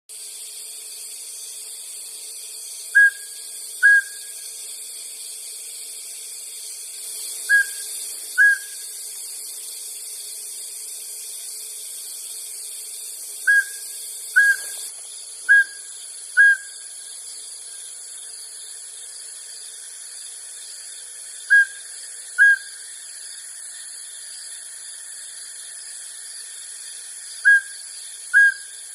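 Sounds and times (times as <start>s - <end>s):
steady high hiss: 0.1s - 28.9s
owl whistled calls: 2.9s - 4.4s, 7.4s - 8.9s, 13.4s - 14.8s, 15.5s - 16.9s, 21.4s - 22.9s, 27.4s - 28.8s.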